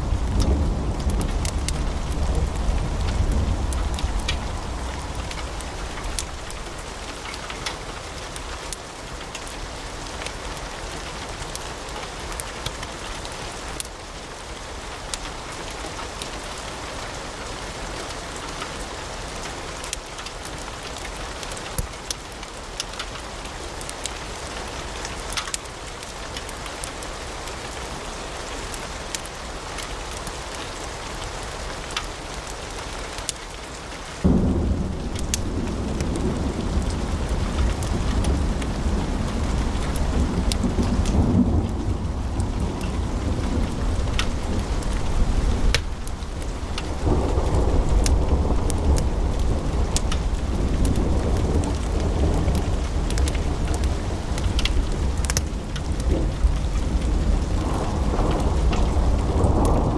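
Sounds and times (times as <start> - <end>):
low rumble: 0.0 - 7.0
wood fire crackling: 0.0 - 59.9.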